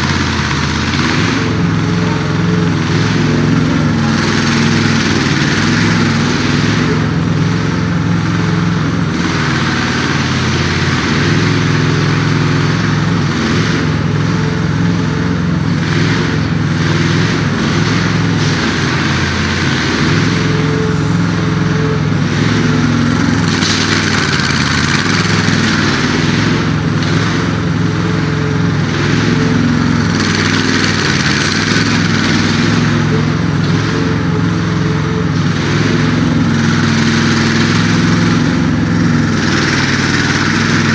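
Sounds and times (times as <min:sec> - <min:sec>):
excavator engine running: 0:00.0 - 0:40.9.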